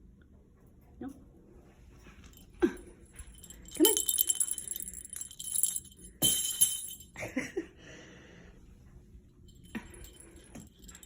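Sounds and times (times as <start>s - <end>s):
small bells jingling: 2.3s - 7.2s, 9.5s - 11.0s.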